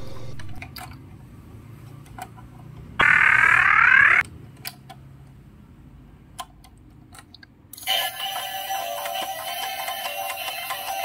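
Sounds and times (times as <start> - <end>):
toy electronic siren: 3.0 - 4.2.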